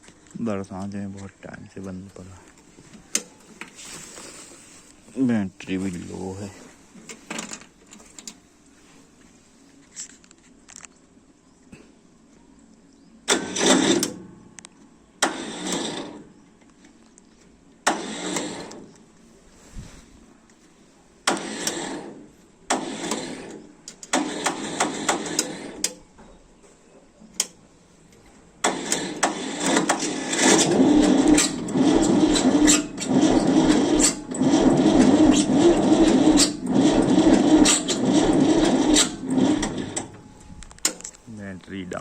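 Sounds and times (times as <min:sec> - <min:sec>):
starter motor cranking engine: 0:13.2 - 0:14.3, 0:15.2 - 0:16.3, 0:17.8 - 0:19.0, 0:21.2 - 0:26.0, 0:28.6 - 0:41.2.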